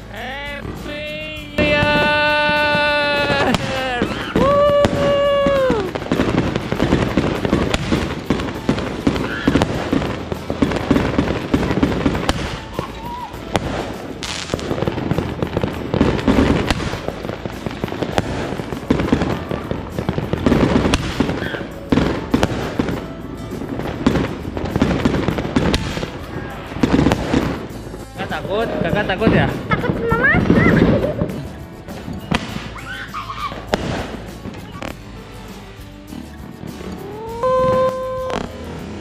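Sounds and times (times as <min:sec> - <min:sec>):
fireworks bangs and crackles: 0:00.0 - 0:39.0
firework whistle: 0:01.6 - 0:27.8, 0:32.1 - 0:35.0, 0:36.8 - 0:39.0.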